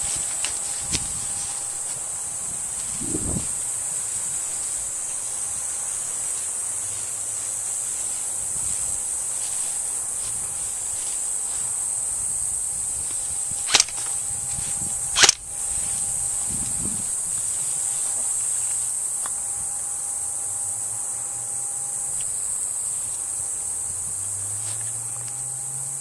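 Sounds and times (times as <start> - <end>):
insects buzzing: 0.0 - 26.0
airsoft gun shots: 13.7 - 14.0, 15.2 - 15.4.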